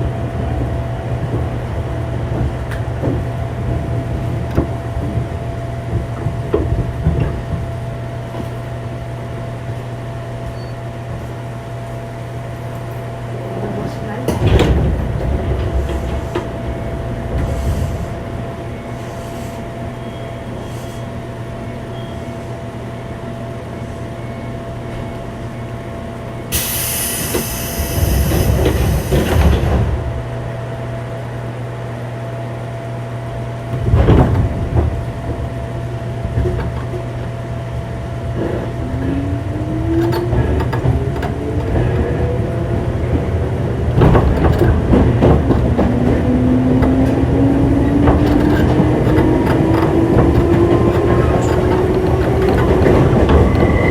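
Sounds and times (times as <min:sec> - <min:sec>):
air hiss: 0:26.5 - 0:29.5.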